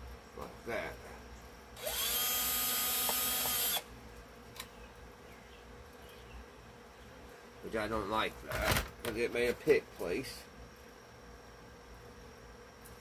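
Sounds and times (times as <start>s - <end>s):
power drill whining: 1.8s - 3.8s.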